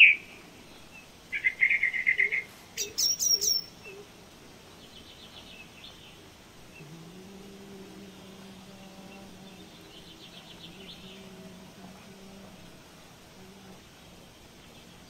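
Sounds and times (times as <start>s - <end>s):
birds chirping: 0.0s - 15.0s
bird trills: 1.3s - 4.0s
steady low hum: 3.7s - 15.0s.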